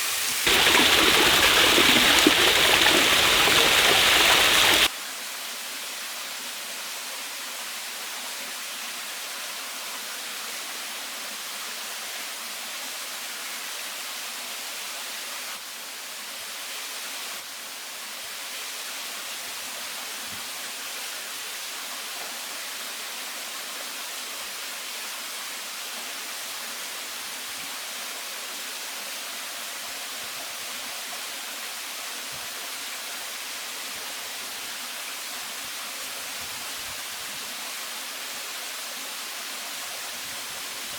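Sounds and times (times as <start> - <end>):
waterfall rushing: 0.0 - 4.9.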